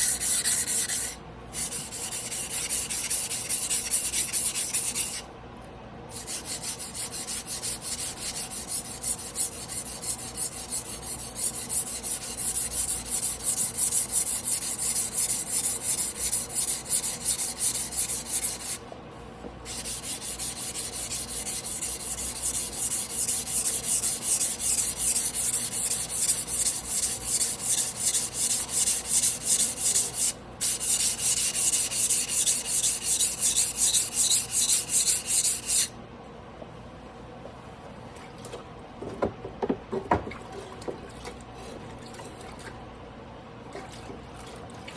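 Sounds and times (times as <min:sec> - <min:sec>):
blade sharpening on whetstone: 0:00.0 - 0:05.2, 0:06.2 - 0:18.8, 0:19.7 - 0:35.9.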